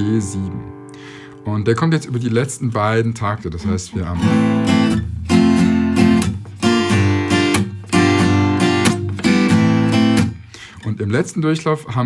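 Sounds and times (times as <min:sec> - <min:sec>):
acoustic guitar strummed: 0:00.0 - 0:02.5, 0:04.2 - 0:10.7.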